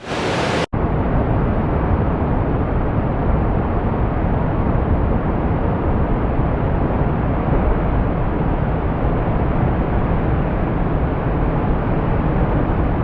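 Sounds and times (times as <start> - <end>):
surf rushing: 0.0 - 0.7
wind on microphone: 0.0 - 13.0.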